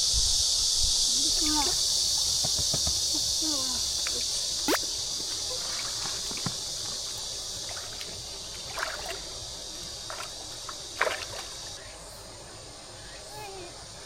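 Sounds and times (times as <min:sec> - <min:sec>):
insect buzz: 0:00.0 - 0:14.0
water sloshing in a creek: 0:01.2 - 0:11.9
water splashes: 0:04.0 - 0:11.8.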